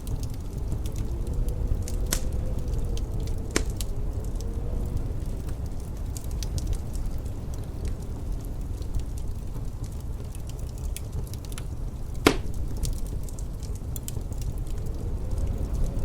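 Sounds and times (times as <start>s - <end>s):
wood fire crackling: 0.0s - 16.0s
loud pop from fire: 1.9s - 2.4s, 3.5s - 3.9s, 12.2s - 13.0s.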